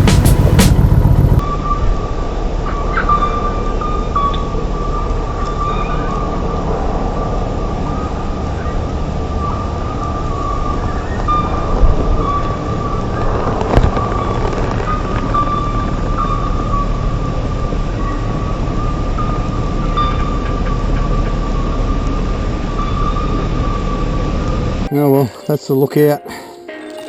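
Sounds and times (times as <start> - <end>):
motorcycle engine running: 0.0 - 1.4
road and wind noise: 0.0 - 3.1, 3.9 - 24.9
steady whine: 0.0 - 24.9.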